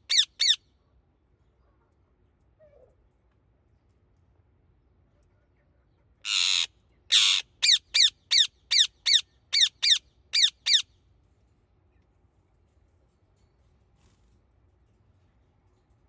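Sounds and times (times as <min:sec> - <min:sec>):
parakeet squawking calls: 0:00.1 - 0:00.6, 0:06.3 - 0:10.8.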